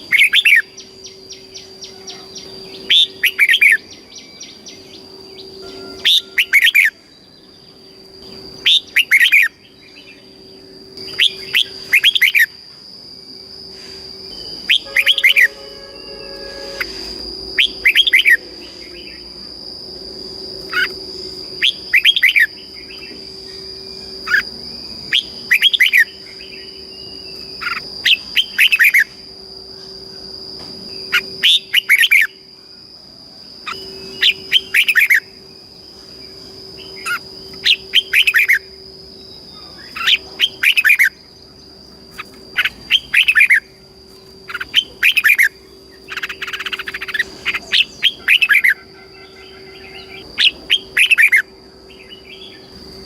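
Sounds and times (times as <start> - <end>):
bird singing warbled phrases: 0.0 - 12.6, 21.6 - 29.1, 33.7 - 35.4, 36.8 - 43.7, 44.5 - 52.8
steady high-pitched whine: 0.0 - 53.0.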